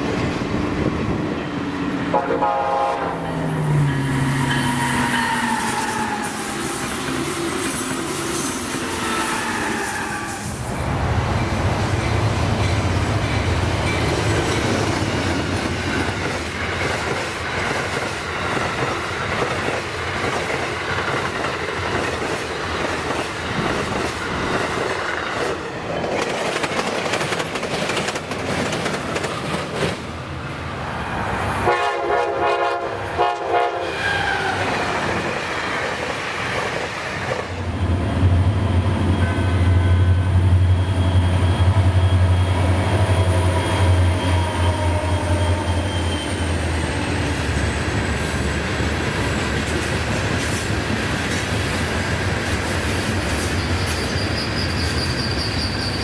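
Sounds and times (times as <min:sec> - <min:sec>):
diesel locomotive engine drone: 0:00.0 - 0:56.0
train cars rushing past: 0:00.0 - 0:56.0
train wheels clattering over rails: 0:11.5 - 0:30.2.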